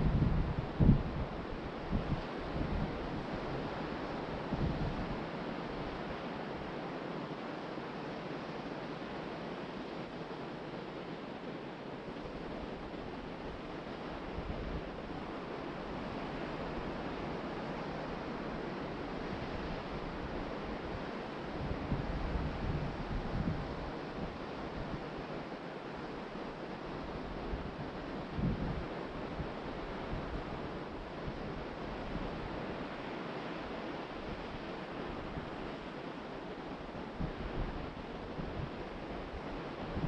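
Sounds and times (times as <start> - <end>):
wind buffeting microphone: 0.0 - 3.6, 27.2 - 32.7.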